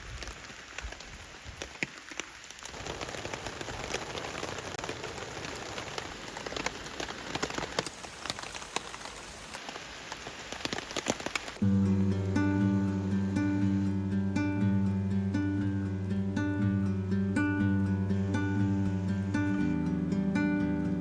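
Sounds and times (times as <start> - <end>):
raindrops ticking on surface: 0.0 - 13.8
heavy rain falling: 0.0 - 14.0.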